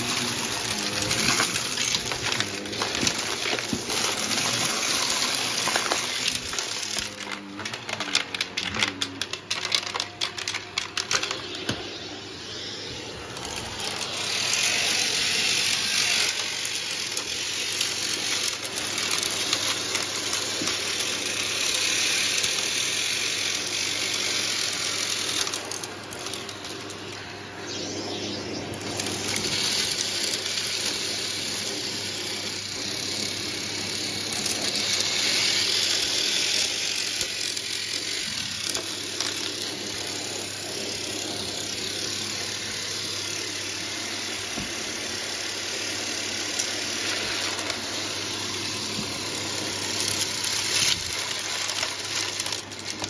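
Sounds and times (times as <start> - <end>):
debris rattling up vacuum hose: 0.0 - 11.8
vacuum cleaner running: 0.0 - 53.0.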